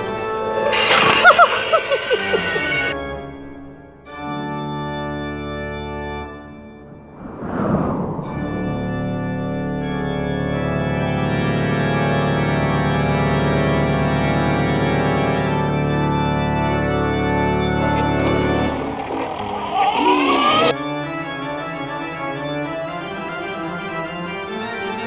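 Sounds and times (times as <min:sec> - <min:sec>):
sustained organ chords: 0:00.0 - 0:03.0, 0:17.8 - 0:20.8.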